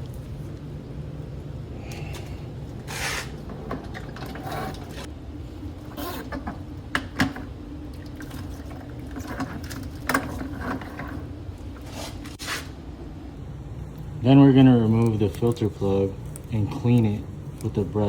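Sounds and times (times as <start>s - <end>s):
water draining into bucket: 7.0s - 11.3s.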